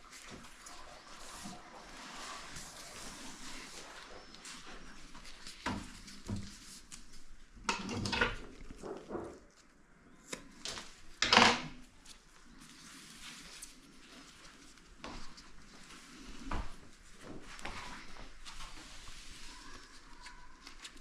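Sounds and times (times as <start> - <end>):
objects knocking and clattering: 7.6 - 9.5.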